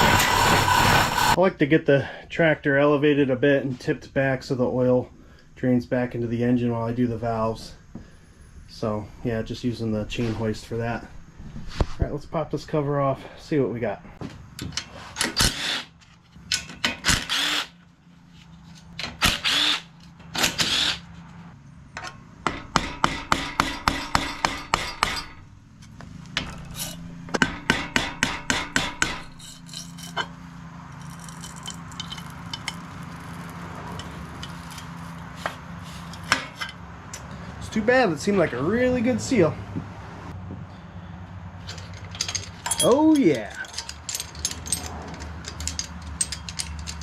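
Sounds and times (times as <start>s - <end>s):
power driver bursts: 19.2s - 21.0s.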